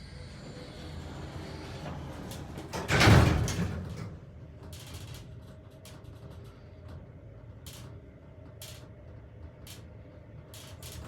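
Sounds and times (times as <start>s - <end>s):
elevator doors sliding open: 0.1s - 5.1s.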